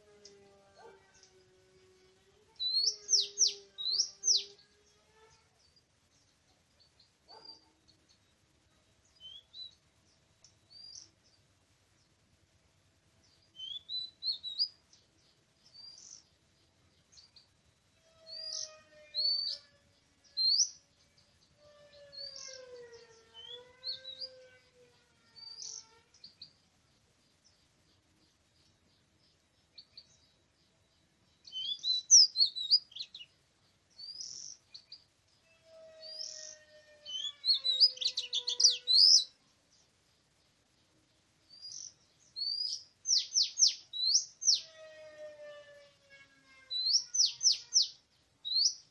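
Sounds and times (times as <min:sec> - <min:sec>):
bird singing whistled phrases: 0:02.6 - 0:04.6, 0:13.6 - 0:14.7, 0:31.4 - 0:33.3, 0:36.0 - 0:39.3, 0:41.6 - 0:44.7, 0:46.7 - 0:48.8.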